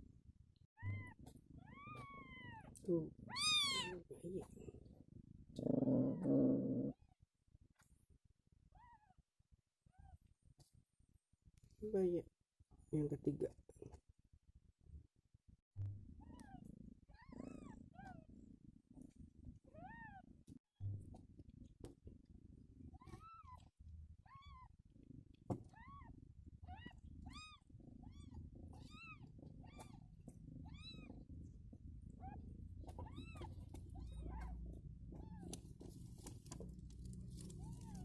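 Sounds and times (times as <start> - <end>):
newborn kittens mewing: 0.8 - 4.2, 32.1 - 35.6.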